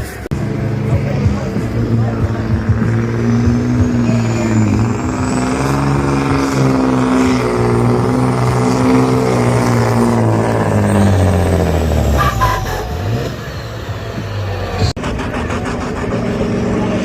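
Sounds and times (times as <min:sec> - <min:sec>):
truck diesel engine labouring: 0:00.0 - 0:17.0.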